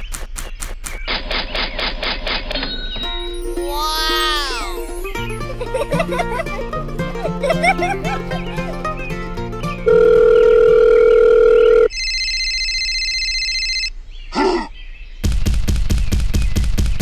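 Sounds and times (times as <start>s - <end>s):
plucked-string music: 3.0s - 10.6s
phone-like electronic ringing: 9.8s - 13.9s.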